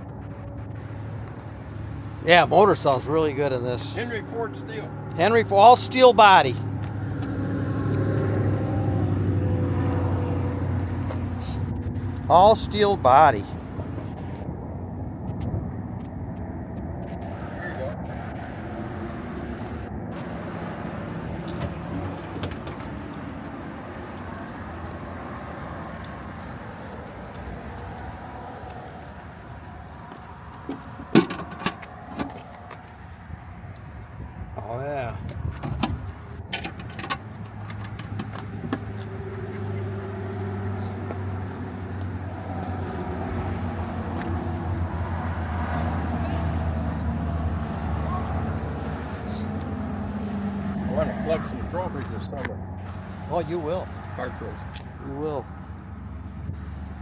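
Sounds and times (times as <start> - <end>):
engine idling: 0.0 - 18.1
car engine idling: 0.0 - 33.9, 35.9 - 57.0.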